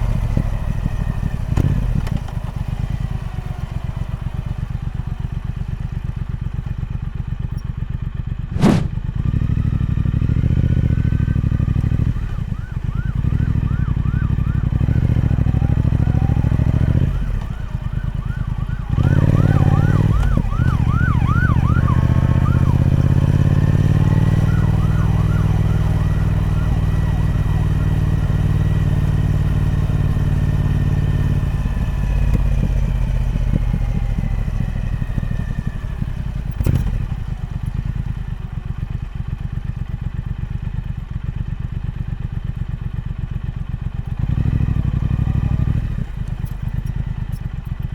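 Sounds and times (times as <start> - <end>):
motorcycle engine idling and revving: 0.0 - 47.9
sharp click: 8.5 - 9.0.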